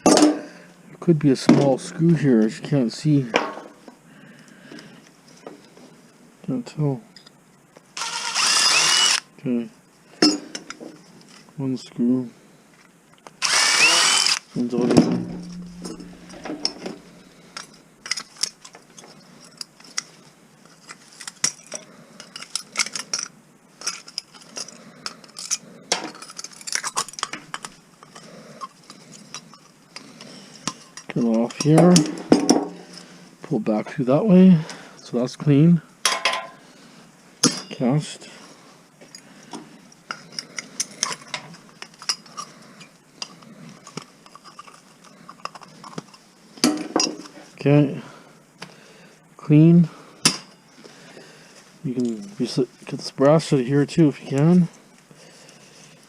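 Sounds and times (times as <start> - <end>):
small metal parts clinking: 15.3 - 20.1, 20.7 - 32.1, 40.1 - 46.2.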